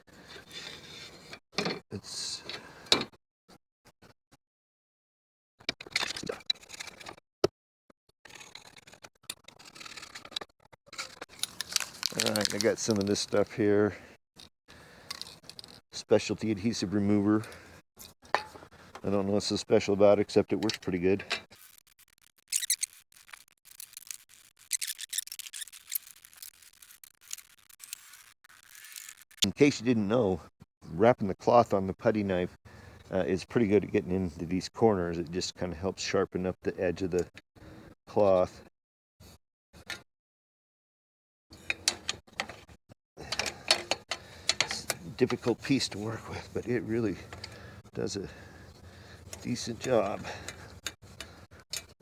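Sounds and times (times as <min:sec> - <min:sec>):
weather stripping scraping: 0:08.3 - 0:13.5, 0:21.5 - 0:29.5.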